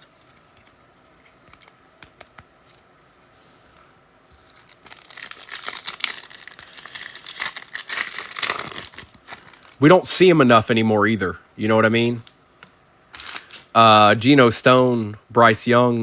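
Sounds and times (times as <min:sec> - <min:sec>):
cards clicking and tapping: 0:01.4 - 0:02.8
wrapper crinkling and tearing: 0:04.4 - 0:09.9, 0:13.1 - 0:13.7.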